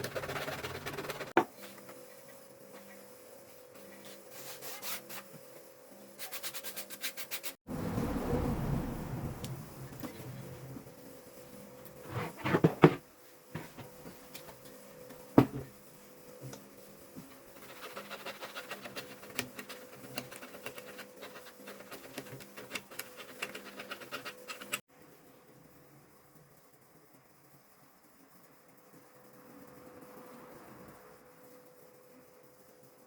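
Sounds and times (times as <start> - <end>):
scratching and scraping: 0.0 - 1.4, 17.5 - 24.8.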